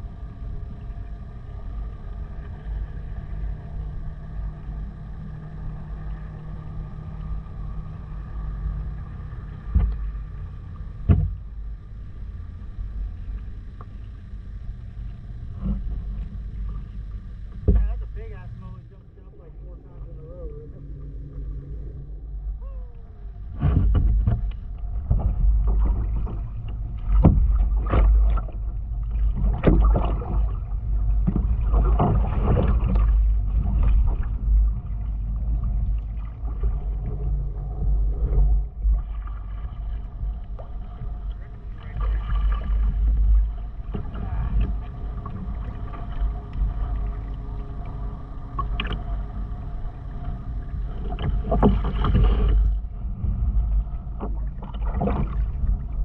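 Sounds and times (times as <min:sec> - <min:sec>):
low rumble: 0:00.0 - 0:56.0
paddle splashing in water: 0:23.6 - 0:49.2, 0:50.8 - 0:52.8, 0:53.5 - 0:56.0.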